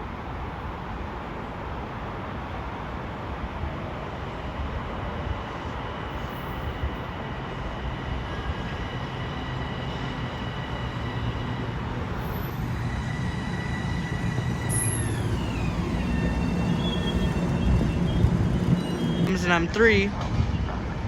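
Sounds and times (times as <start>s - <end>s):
train rail noise: 0.0s - 21.0s
traction motor whine: 9.2s - 19.3s.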